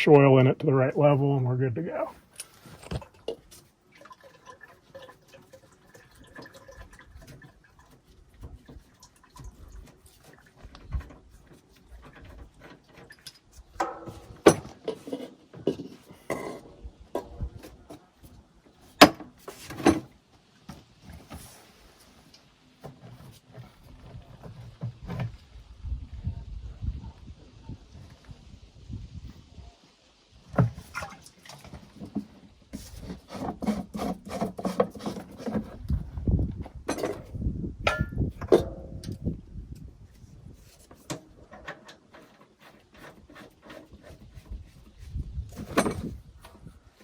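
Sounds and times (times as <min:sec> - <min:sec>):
oil dripping into plastic jug: 0:03.0 - 0:10.7
jug and tools knocking: 0:12.2 - 0:18.0, 0:36.8 - 0:39.2.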